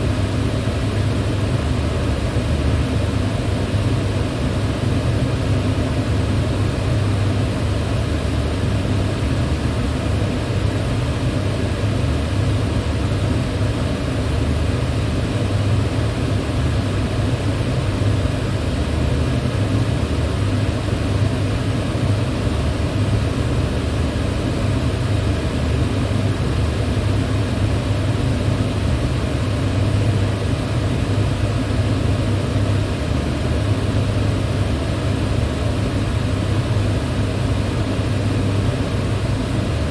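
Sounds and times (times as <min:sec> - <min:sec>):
electric fan running: 0:00.0 - 0:39.9.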